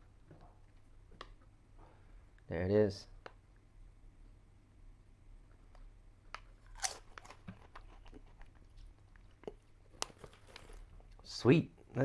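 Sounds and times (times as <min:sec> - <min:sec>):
crunching crisp snack: 0:06.4 - 0:10.9.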